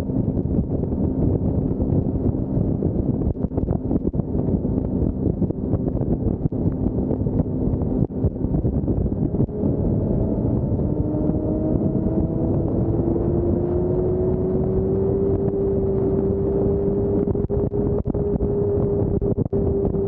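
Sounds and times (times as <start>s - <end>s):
motorcycle engine: 0.0s - 20.0s
road noise: 0.0s - 20.0s
wind buffeting microphone: 0.0s - 20.0s
steady rising tone: 9.4s - 19.8s.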